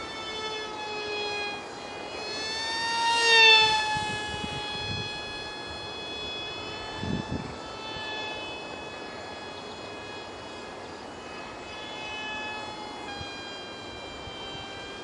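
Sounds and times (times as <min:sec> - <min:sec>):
small electric motor whine: 0:00.0 - 0:15.0
wind-like noise: 0:00.6 - 0:15.0.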